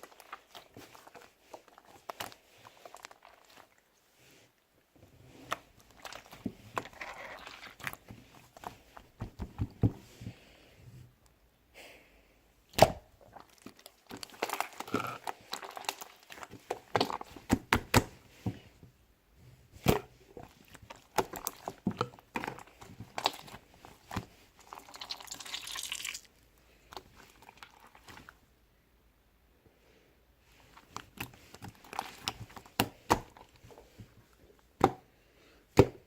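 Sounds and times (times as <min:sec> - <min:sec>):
slime squishing with clicks: 0:12.7 - 0:18.2, 0:19.8 - 0:26.1, 0:30.7 - 0:33.9.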